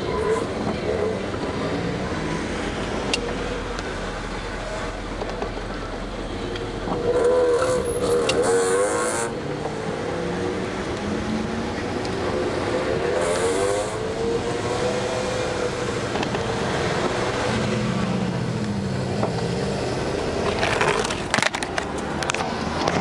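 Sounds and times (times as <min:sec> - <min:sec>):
car engines revving: 0:00.0 - 0:23.0.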